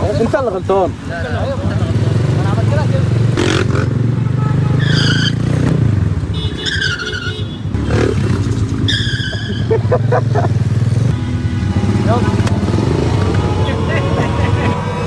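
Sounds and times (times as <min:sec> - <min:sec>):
motorcycle engine running: 0:10.1 - 0:15.0.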